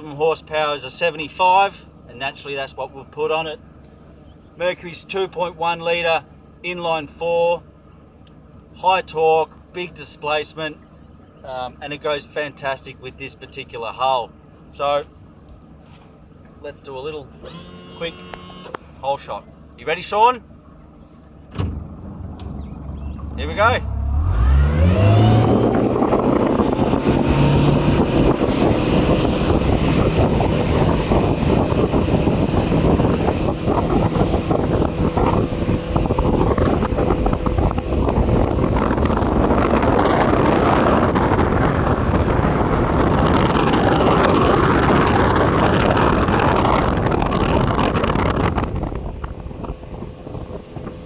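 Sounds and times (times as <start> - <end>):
outboard motor running hard: 0.0 - 51.0
wind buffeting microphone: 21.5 - 51.0.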